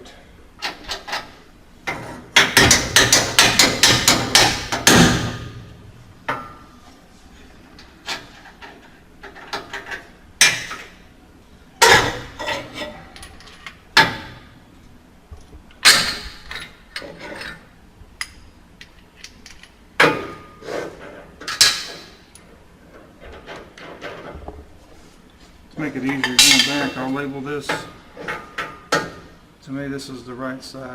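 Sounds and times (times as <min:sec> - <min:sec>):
metal clanks and knocks: 0:00.6 - 0:06.7, 0:11.8 - 0:14.5, 0:26.0 - 0:29.3.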